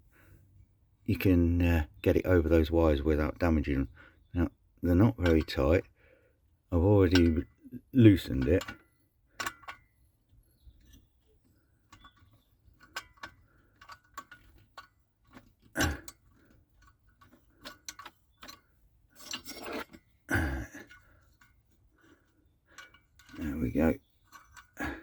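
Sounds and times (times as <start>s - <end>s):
metal tools clicking and clinking: 5.0s - 5.8s, 6.8s - 9.9s, 10.8s - 25.0s.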